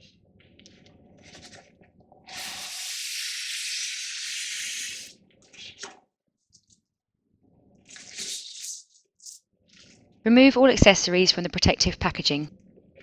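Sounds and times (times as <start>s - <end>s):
paper or plastic sliding hiss: 2.3s - 5.1s.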